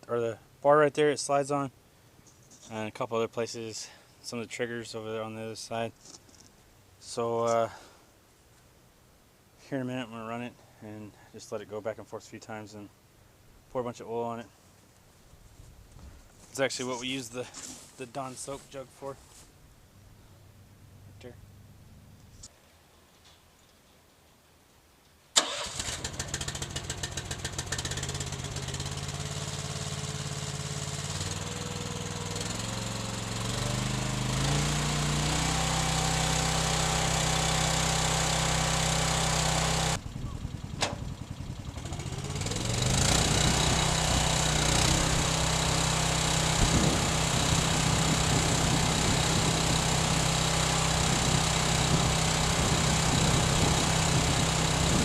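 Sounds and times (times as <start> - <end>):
engine running: 16.8 - 22.4, 25.4 - 55.0.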